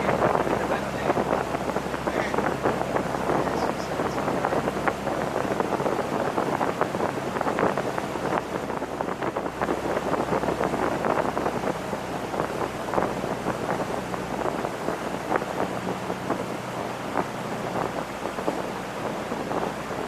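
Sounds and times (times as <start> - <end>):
boat engine hum: 0.0 - 20.0
rushing water: 0.0 - 20.0
wind buffeting microphone: 0.0 - 20.0.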